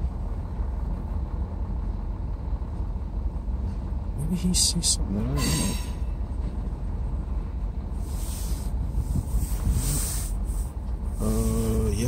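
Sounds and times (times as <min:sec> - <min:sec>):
freight train rumbling: 0:00.0 - 0:12.0
hiss: 0:08.0 - 0:11.9.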